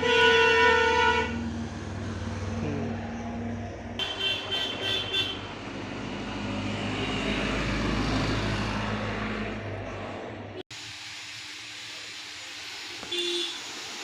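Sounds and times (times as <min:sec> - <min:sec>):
car horn toots: 0:00.0 - 0:01.4, 0:04.0 - 0:05.5, 0:13.1 - 0:13.6
street traffic: 0:00.0 - 0:14.0.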